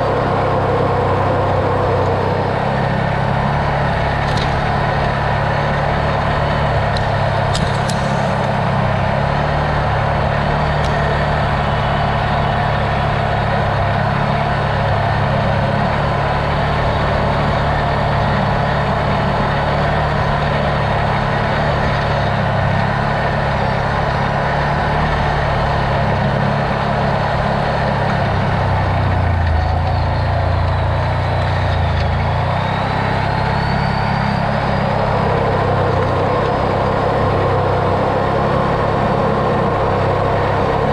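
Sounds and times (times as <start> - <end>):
off-road vehicle engine running: 0.0 - 40.9.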